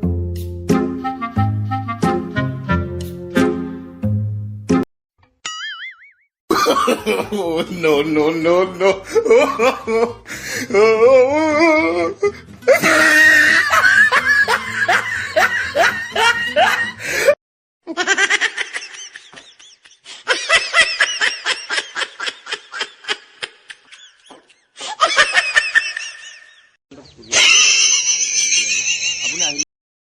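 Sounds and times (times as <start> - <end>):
people laughing: 6.5 - 10.2, 10.8 - 26.6, 27.2 - 29.6.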